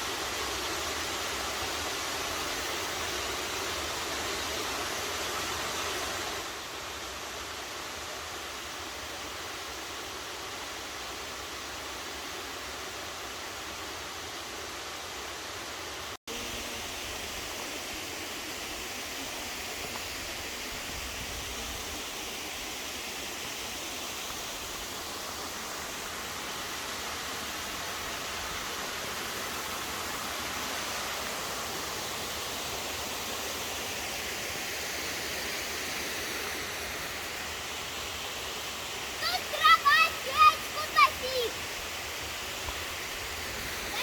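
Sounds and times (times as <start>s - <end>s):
waterfall rushing: 15.4s - 44.0s.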